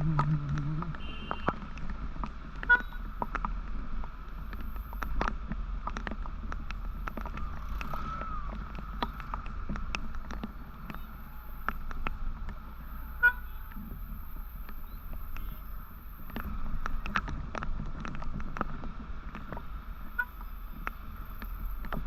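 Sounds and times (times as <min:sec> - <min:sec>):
motorcycle engine and road rumble: 0:00.0 - 0:22.0
vehicle horn toot: 0:01.0 - 0:01.6, 0:02.7 - 0:03.0, 0:13.0 - 0:13.7.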